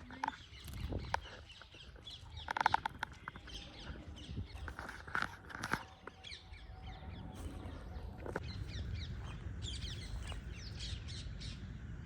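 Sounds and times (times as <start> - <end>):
birds chirping and calling: 0.0 - 12.0
steady low rumble: 6.5 - 12.0.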